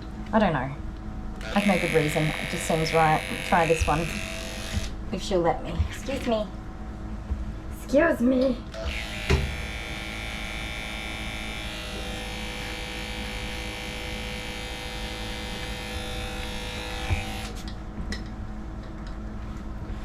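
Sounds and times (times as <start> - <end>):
electric clipper humming: 1.4 - 5.0, 8.7 - 17.7.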